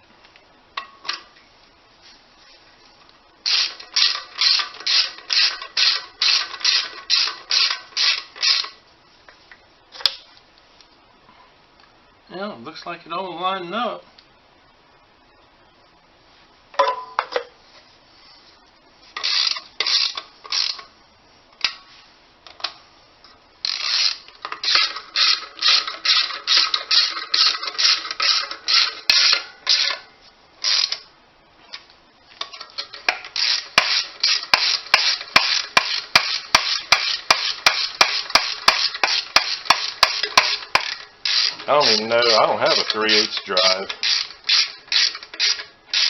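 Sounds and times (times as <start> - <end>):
ratchet wrench strokes: 3.4 - 8.8, 19.2 - 20.9, 23.6 - 30.0, 30.6 - 31.0, 32.7 - 46.0.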